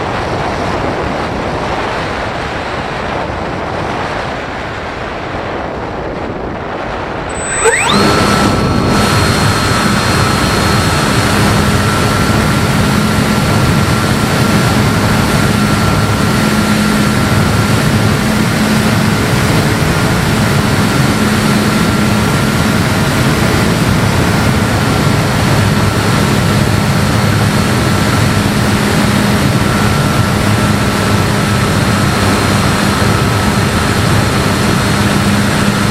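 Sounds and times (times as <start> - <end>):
wind and propeller rush: 0.0 - 35.9
electric motor high whine: 7.3 - 35.9.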